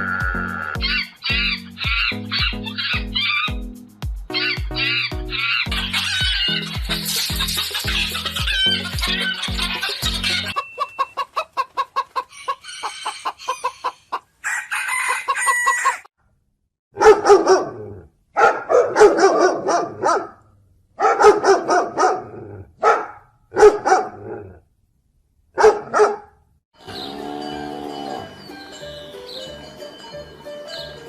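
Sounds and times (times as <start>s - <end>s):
rooster crowing: 0.8s - 3.6s, 4.3s - 6.5s, 12.3s - 16.1s
chickens clucking: 9.8s - 16.0s.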